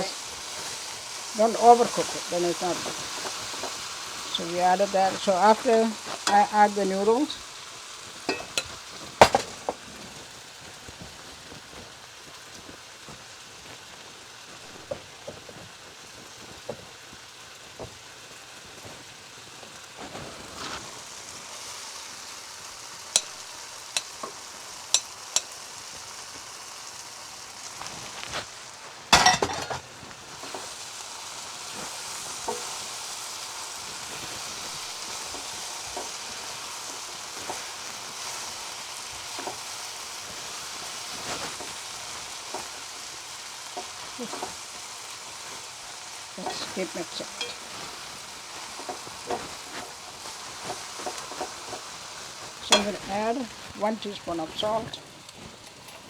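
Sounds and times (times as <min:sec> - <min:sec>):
food sizzling in a pan: 0:00.0 - 0:56.0
utensil clicking against pan: 0:23.1 - 0:25.6.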